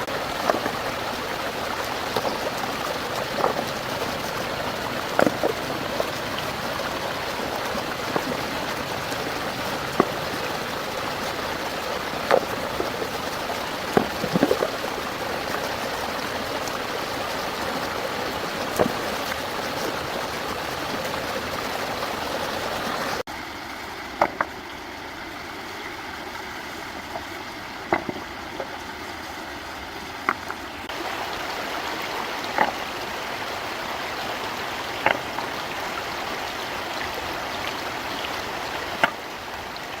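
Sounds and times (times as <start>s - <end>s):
stream water rushing: 0.0s - 40.0s
sharp knocks or splashes: 1.8s - 10.9s, 12.2s - 13.1s, 13.8s - 15.6s, 27.9s - 28.3s, 32.5s - 32.9s, 35.0s - 35.4s, 39.0s - 39.2s.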